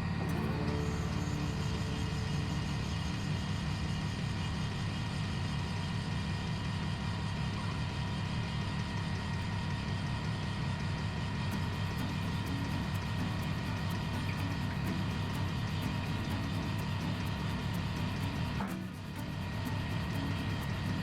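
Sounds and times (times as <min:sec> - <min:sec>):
machine humming: 0:00.0 - 0:07.1, 0:11.5 - 0:21.0.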